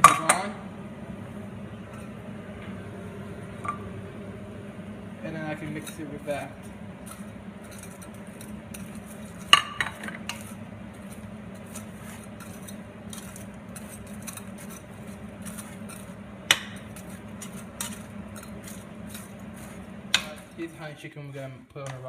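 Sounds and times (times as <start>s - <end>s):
steady low hum: 0.0s - 22.0s
utensil stirring food in cookware: 5.3s - 21.0s.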